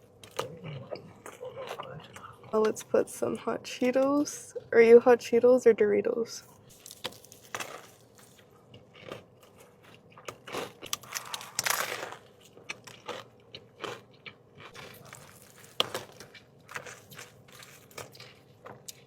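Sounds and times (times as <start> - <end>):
crunchy sandwich biting and chewing: 6.7 - 19.0.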